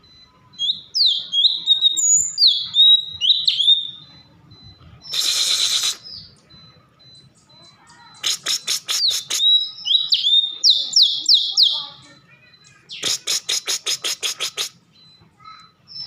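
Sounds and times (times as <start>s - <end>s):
songbird whistling song: 0.1s - 11.9s.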